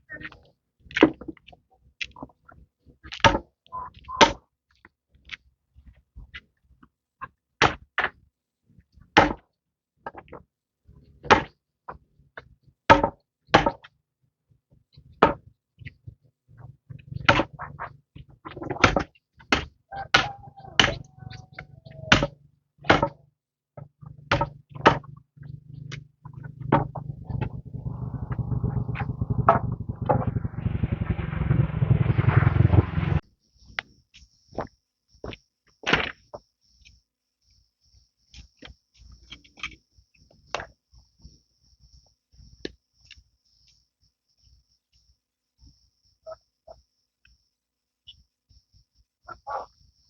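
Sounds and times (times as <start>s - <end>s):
faint low hum: 24.0s - 33.2s.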